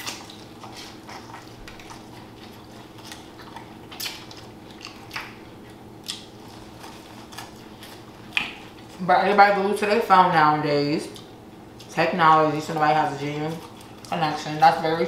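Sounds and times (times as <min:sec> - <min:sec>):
quiet chewing: 0:00.0 - 0:09.0, 0:11.1 - 0:12.0, 0:12.7 - 0:14.8.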